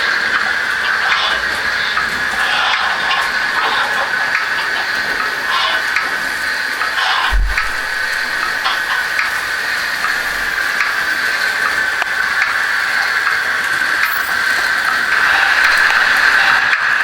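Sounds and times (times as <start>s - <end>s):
model train running: 0.0s - 17.0s.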